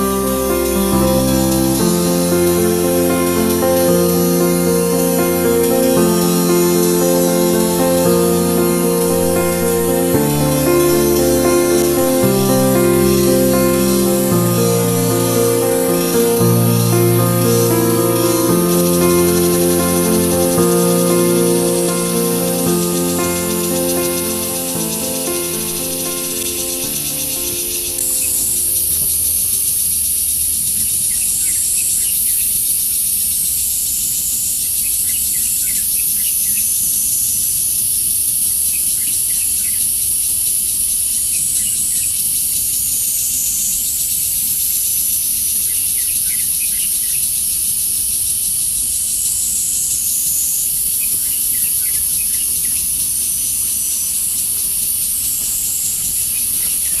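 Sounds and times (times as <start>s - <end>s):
high-pitched insect chorus: 0.0s - 29.7s.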